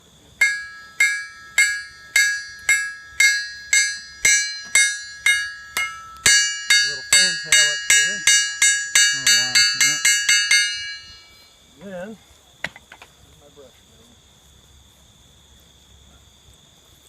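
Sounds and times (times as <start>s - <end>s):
hammer striking steel on anvil: 0.4s - 11.4s.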